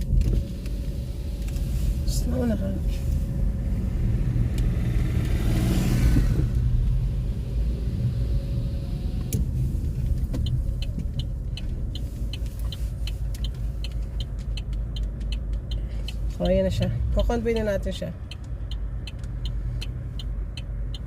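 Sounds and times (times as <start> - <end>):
car engine rumble inside cabin: 0.0 - 21.0
turn signal ticking: 0.0 - 21.0
vehicle passing: 1.0 - 12.9.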